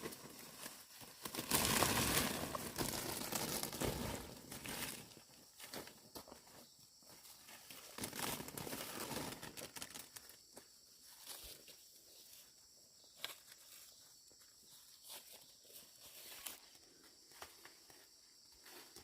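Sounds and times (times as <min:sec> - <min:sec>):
dry corn plants rustling: 0:00.0 - 0:14.1, 0:14.7 - 0:19.0
footsteps through corn stalks: 0:00.0 - 0:19.0.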